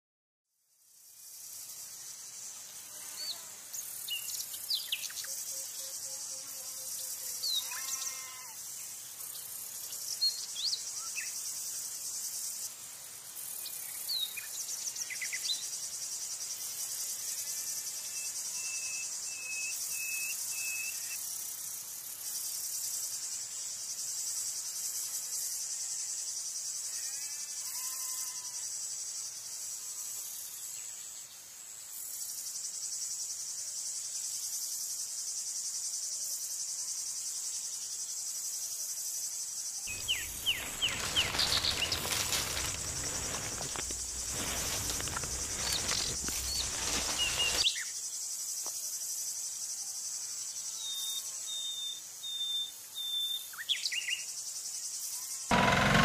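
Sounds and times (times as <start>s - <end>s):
insects chirring: 0.9s - 56.0s
bird chirping: 39.9s - 47.9s.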